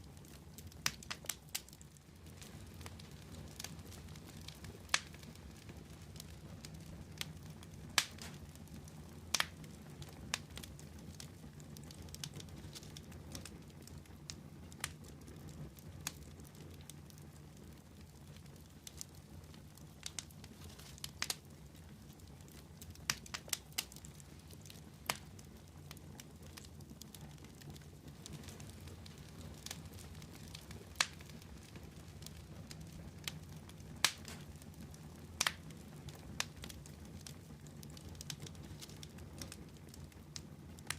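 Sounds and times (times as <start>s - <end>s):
fire crackling: 0.0s - 40.9s.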